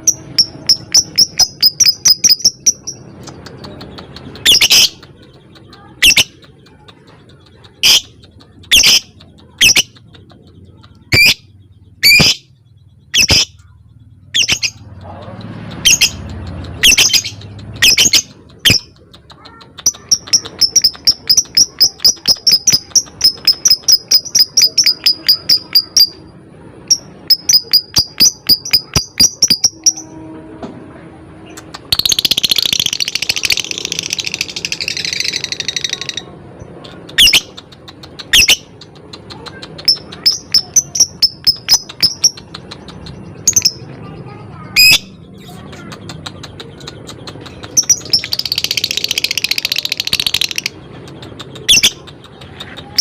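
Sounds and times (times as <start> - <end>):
lovebird ticking calls: 0.0 - 30.0, 31.5 - 44.1, 44.7 - 53.0
lovebird high chatter: 0.0 - 30.3, 31.2 - 53.0
shrill bird calls: 12.0 - 14.8.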